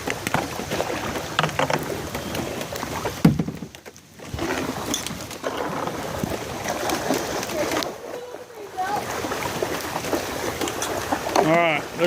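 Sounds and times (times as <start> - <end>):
paddle splashing: 0.0 - 12.0
water sloshing against boat: 0.0 - 12.0
dull thump on boat: 3.1 - 4.7.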